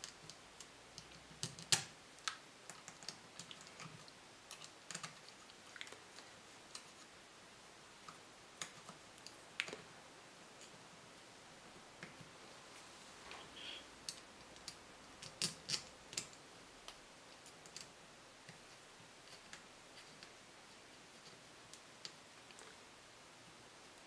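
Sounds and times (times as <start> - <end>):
small parts and tools clicking: 0.0 - 6.9, 14.0 - 18.6.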